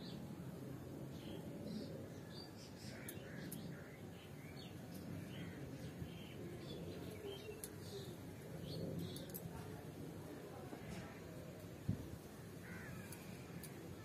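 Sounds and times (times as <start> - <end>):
small birds chirping: 1.0 - 9.8
faint sharp clicks: 3.0 - 3.8, 7.5 - 7.8, 9.0 - 9.6, 13.0 - 13.8.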